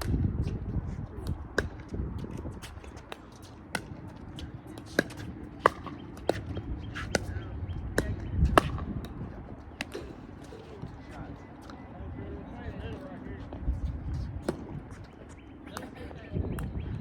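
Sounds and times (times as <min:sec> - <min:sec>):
wind rumble on microphone: 0:00.0 - 0:17.0
paddles striking pickleball: 0:01.5 - 0:07.4, 0:08.0 - 0:09.2, 0:09.8 - 0:10.9.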